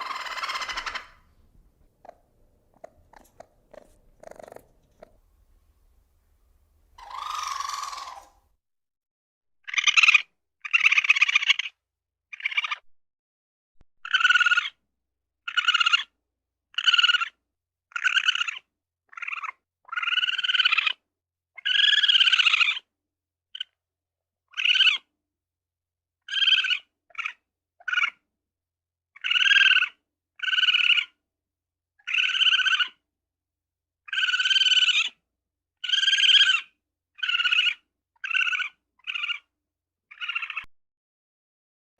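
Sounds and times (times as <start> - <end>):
small animal high-pitched calls: 0.0 - 1.4, 2.0 - 5.2, 7.0 - 8.4, 9.6 - 12.8, 14.0 - 14.8, 15.5 - 21.0, 21.6 - 22.9, 24.5 - 25.1, 26.2 - 28.2, 29.2 - 31.2, 32.0 - 33.0, 34.0 - 35.2, 35.8 - 39.5, 40.1 - 40.7.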